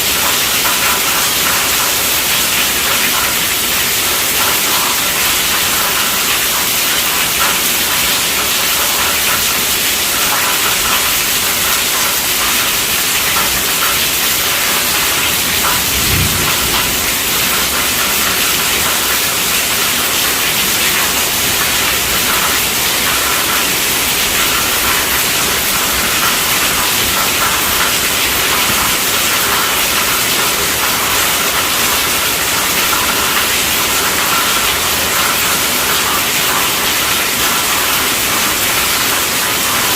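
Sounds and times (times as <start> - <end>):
heavy rain on a tent roof: 0.0 - 39.9
low thump: 16.0 - 17.1.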